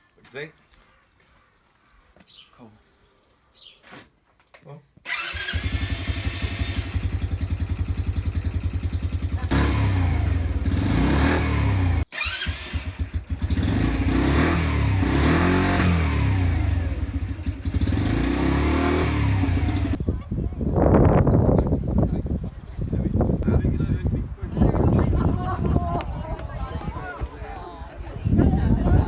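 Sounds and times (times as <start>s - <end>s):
motorcycle engine revving: 5.1s - 20.0s.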